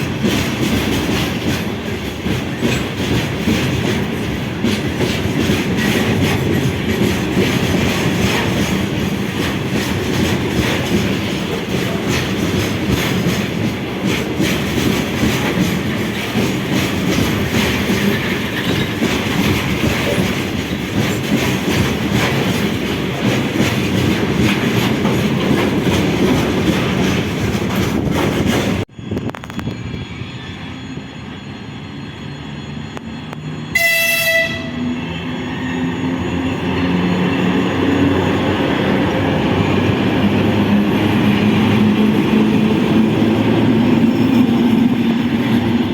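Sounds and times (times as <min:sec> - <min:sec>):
train wheels rolling over rails: 0:00.0 - 0:31.0, 0:31.8 - 0:45.9
train horn: 0:33.7 - 0:35.2.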